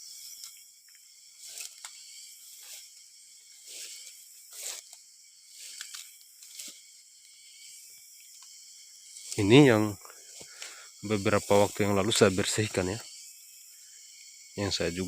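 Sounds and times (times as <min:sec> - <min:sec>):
insects chirring: 0:00.0 - 0:15.0
footsteps rustling through grass: 0:02.4 - 0:06.9.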